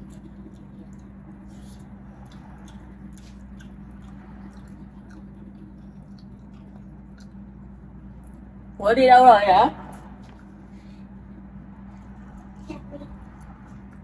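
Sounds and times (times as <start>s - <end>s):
person chewing: 0.0s - 8.6s
steady low hum: 0.0s - 14.0s.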